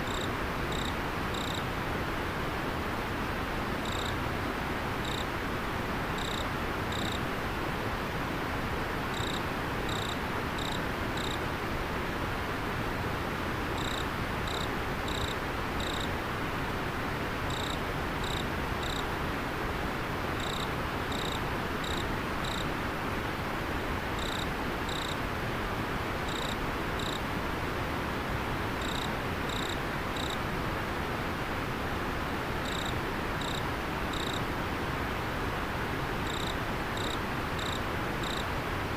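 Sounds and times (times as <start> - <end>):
insect chirping: 0.0 - 1.6, 3.8 - 4.2, 5.0 - 5.3, 6.2 - 7.2, 9.1 - 11.4, 13.8 - 16.1, 17.5 - 19.0, 20.4 - 22.6, 24.2 - 25.2, 26.3 - 27.2, 28.8 - 30.4, 32.6 - 34.4, 36.3 - 38.4.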